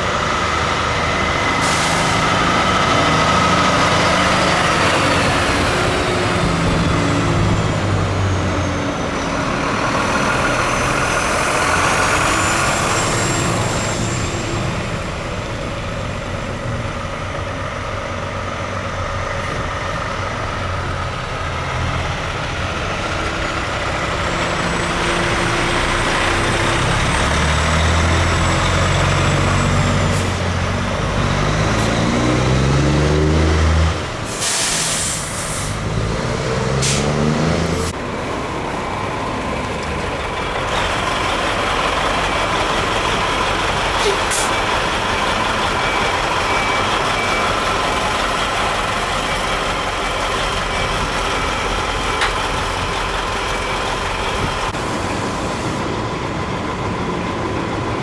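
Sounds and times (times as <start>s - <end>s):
diesel truck engine accelerating: 0.0s - 58.0s
sharp hiss of air: 34.3s - 35.8s.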